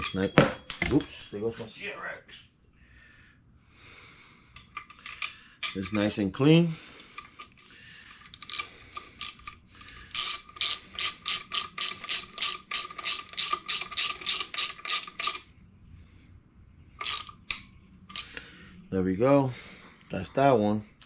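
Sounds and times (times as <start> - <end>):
ratchet wrench clicking: 8.2 - 15.4, 17.0 - 18.4.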